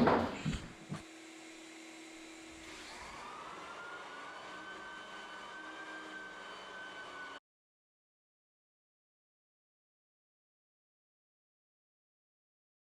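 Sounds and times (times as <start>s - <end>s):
sanding machine motor whine: 0.4s - 7.4s.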